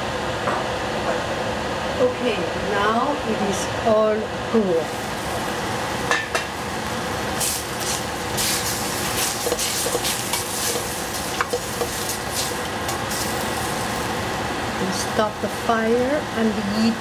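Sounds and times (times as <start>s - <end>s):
food sizzling in a pot: 4.8s - 16.8s
utensil scraping and knocking pot: 7.8s - 13.4s.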